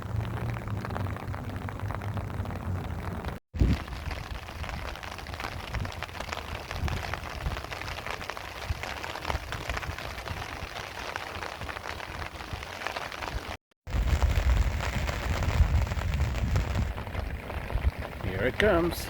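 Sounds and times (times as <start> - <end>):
steady low rumble: 0.0 - 4.1
light rain spattering: 0.0 - 19.0.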